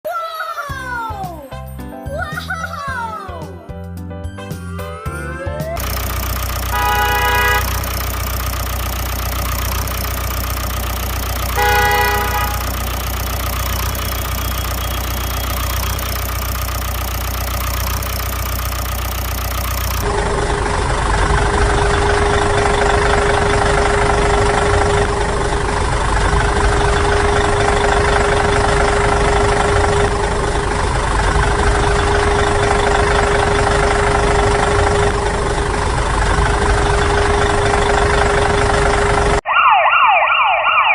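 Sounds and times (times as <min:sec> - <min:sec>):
engine running with whine: 0:05.4 - 0:39.5
engine hum: 0:05.5 - 0:39.4
horn honks: 0:06.5 - 0:09.9, 0:11.0 - 0:17.1.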